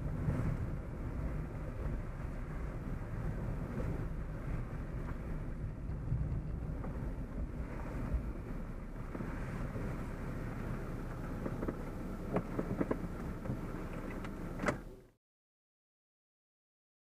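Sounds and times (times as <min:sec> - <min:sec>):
car road and engine rumble: 0:00.0 - 0:15.2.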